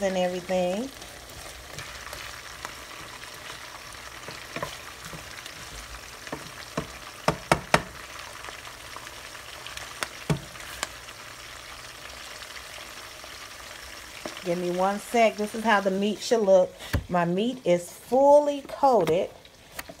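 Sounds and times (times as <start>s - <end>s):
vegetables sizzling in a skillet: 0.0s - 20.0s
spatula knocking against pan: 6.3s - 8.0s.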